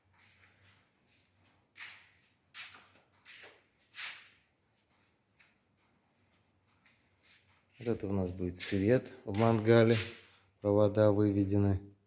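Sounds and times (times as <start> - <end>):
faint scuffing footsteps: 0.0 - 10.8.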